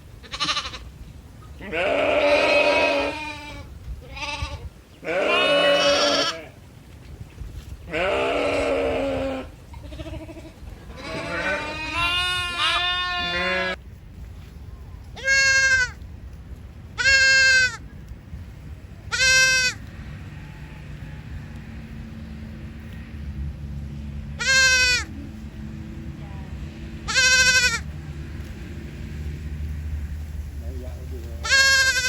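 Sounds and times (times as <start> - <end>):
sheep or goats bleating: 0.2 - 0.9, 1.6 - 6.6, 7.9 - 13.8, 15.2 - 16.0, 17.0 - 17.8, 19.1 - 19.8, 24.4 - 25.1, 27.1 - 27.9, 31.4 - 32.0.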